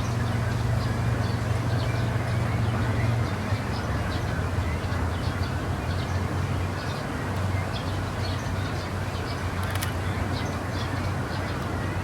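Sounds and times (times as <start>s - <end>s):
city background rumble: 0.0s - 12.0s
sharp click: 9.6s - 10.0s.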